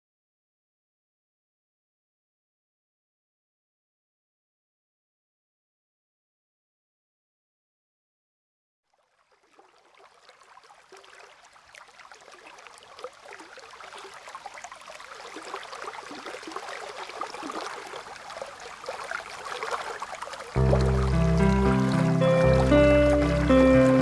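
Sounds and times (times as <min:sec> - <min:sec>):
water trickling and splashing: 0:08.8 - 0:24.0
music with deep bass: 0:20.6 - 0:24.0.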